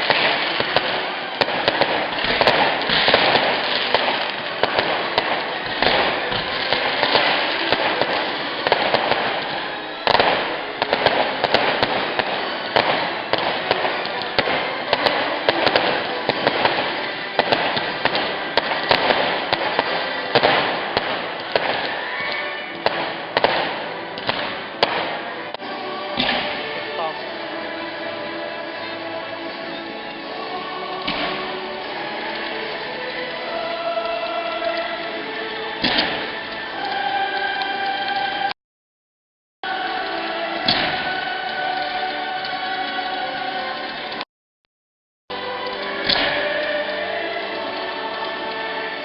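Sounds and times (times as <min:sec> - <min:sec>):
loud firework bang: 0:00.0 - 0:22.2, 0:22.8 - 0:25.3, 0:26.2 - 0:26.6, 0:35.8 - 0:36.3, 0:40.7 - 0:41.2
fireworks crackling: 0:00.0 - 0:38.6, 0:39.6 - 0:44.3, 0:45.3 - 0:49.0.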